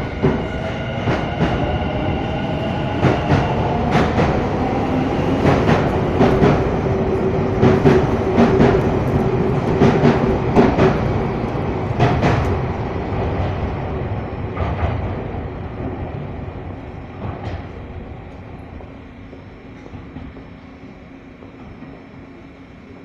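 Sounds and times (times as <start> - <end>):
train wheels clacking: 0.0 - 12.8
train hum: 0.0 - 23.0.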